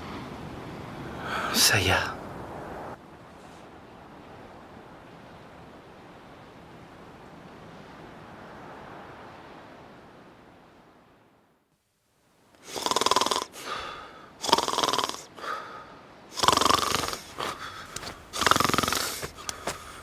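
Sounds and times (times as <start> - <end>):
soft background noise: 0.0 - 20.0
person snoring: 12.6 - 15.7, 16.3 - 20.0.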